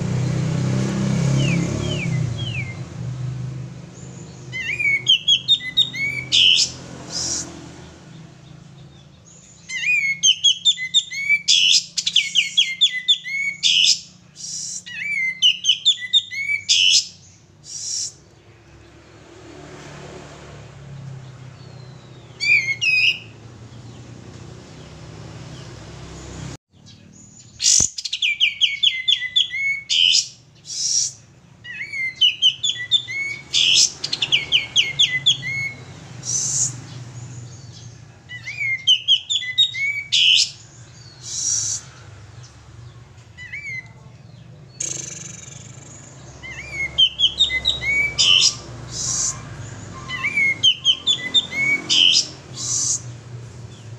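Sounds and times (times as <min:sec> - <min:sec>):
songbird chattering and warbling: 0:01.3 - 0:19.0, 0:21.0 - 0:53.9.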